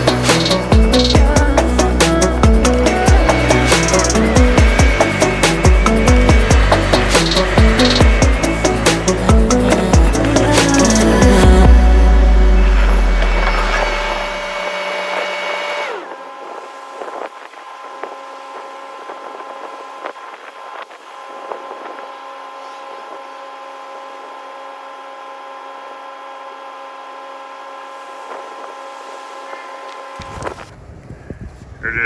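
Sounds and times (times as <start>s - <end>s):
music with heavy bass: 0.0s - 14.6s
skid steer engine whine: 0.0s - 30.9s.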